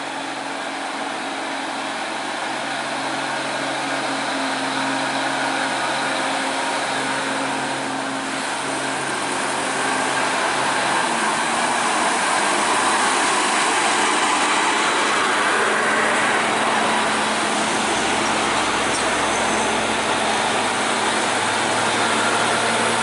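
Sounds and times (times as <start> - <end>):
heavy truck engine running: 0.0 - 23.0
road and traffic noise: 0.0 - 23.0.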